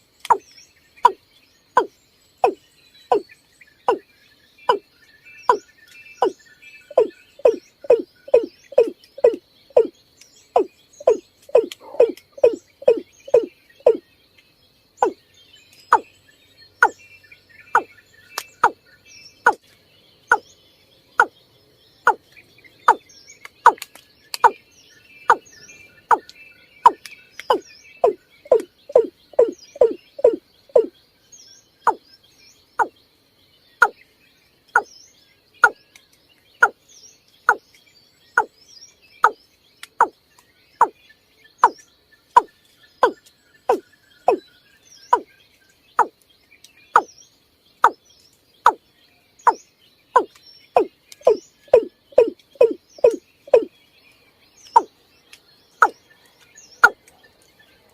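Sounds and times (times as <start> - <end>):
faint high chirps: 0.2 - 21.4, 22.0 - 31.0, 31.6 - 33.0, 39.2 - 47.2, 47.8 - 53.8, 54.6 - 57.8
bird calling deep hollow notes: 1.8 - 3.2, 6.2 - 9.9, 10.6 - 14.0, 26.8 - 30.9, 42.4 - 44.4, 50.2 - 53.7.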